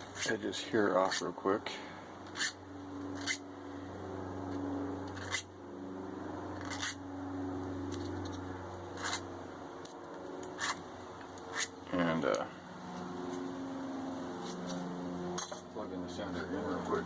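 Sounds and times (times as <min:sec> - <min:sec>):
file scraping steel: 0:00.0 - 0:00.4, 0:02.3 - 0:02.6, 0:03.2 - 0:03.4, 0:05.1 - 0:05.5, 0:06.6 - 0:07.0, 0:09.0 - 0:09.3, 0:10.5 - 0:10.8, 0:11.4 - 0:11.8.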